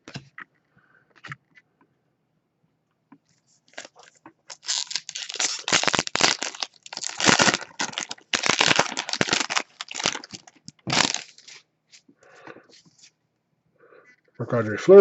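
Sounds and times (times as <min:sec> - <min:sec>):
foil wrapper crinkling: 0:03.7 - 0:12.0.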